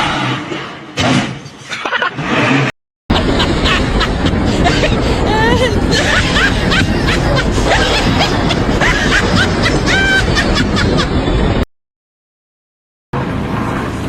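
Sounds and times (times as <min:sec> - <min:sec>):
snickering laughter: 0:03.1 - 0:11.2
noisy background: 0:03.1 - 0:11.6, 0:13.2 - 0:14.0.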